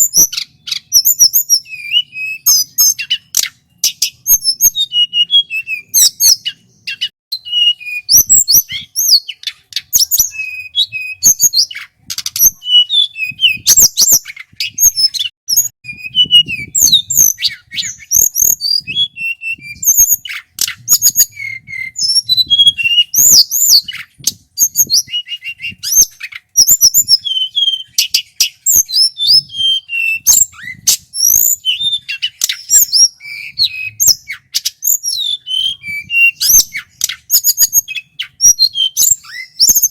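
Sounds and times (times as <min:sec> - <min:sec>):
bird singing whistled trills: 0:00.0 - 0:39.9.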